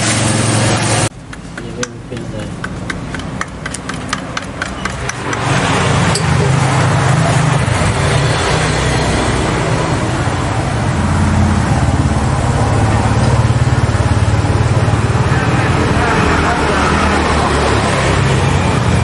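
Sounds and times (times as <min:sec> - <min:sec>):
loud steady motor rumble: 0:00.0 - 0:19.0
stir stick clicking on metal can: 0:01.3 - 0:05.5.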